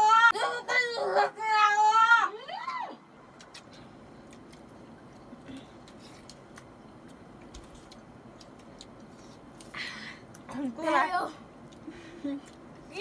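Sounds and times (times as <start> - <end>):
people chewing with mouth smacks: 3.3 - 10.7, 11.6 - 12.9.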